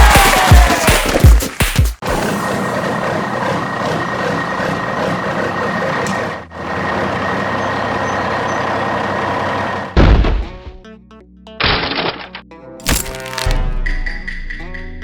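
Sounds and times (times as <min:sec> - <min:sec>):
truck engine running: 0:02.0 - 0:10.0
loud thump: 0:10.0 - 0:10.6.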